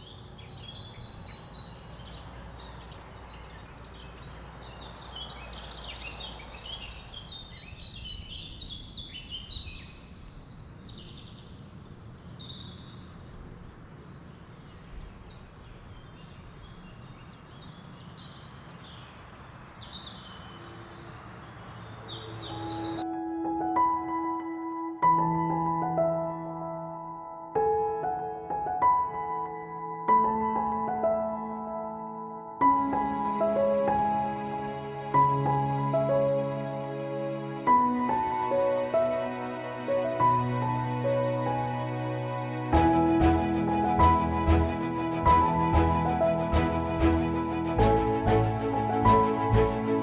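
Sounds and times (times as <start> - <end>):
birds chirping and singing: 0.0 - 23.0.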